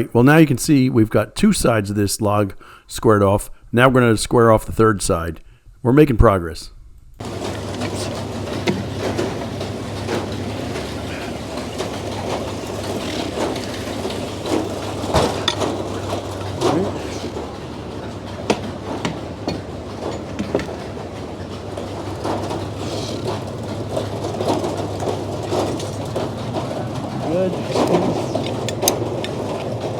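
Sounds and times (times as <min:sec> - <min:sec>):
clanks and knocks: 0:07.2 - 0:29.9
sawmill humming: 0:07.2 - 0:29.9.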